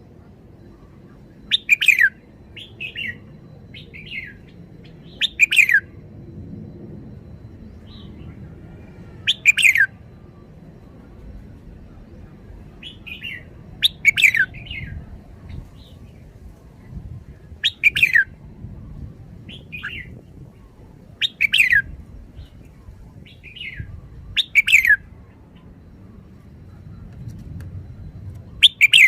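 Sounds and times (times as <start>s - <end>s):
bird singing whistled phrases: 1.4s - 5.9s, 9.2s - 10.9s, 12.8s - 15.0s, 17.6s - 18.4s, 19.5s - 22.5s, 23.2s - 25.1s, 28.5s - 29.0s.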